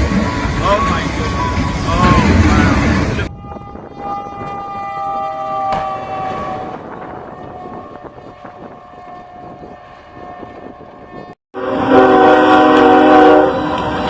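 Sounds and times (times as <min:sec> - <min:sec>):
train rumbling: 0:00.0 - 0:14.0
locomotive air horn chord: 0:03.2 - 0:14.0
faint steady horn tone: 0:03.3 - 0:13.6.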